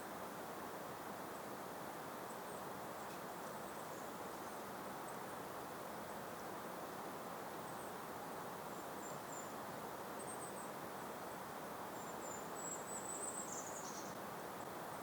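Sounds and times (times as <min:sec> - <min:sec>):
gentle breeze hiss: 0:00.0 - 0:15.0
faint high bird calls: 0:11.9 - 0:14.2.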